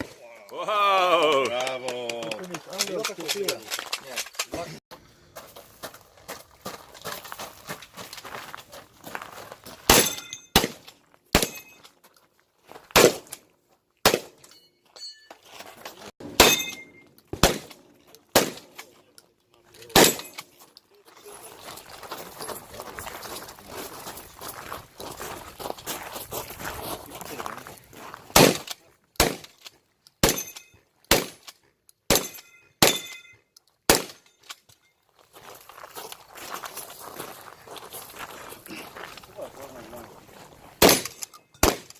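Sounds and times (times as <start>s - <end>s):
steel targets ringing: 9.9s - 10.6s, 14.5s - 15.4s, 16.2s - 17.4s, 32.1s - 33.4s
shotgun shots: 9.9s - 11.7s, 13.0s - 13.4s, 14.0s - 14.4s, 16.2s - 18.8s, 19.9s - 20.4s, 28.3s - 29.5s, 30.2s - 31.4s, 32.1s - 33.1s, 33.9s - 34.2s, 40.8s - 41.9s.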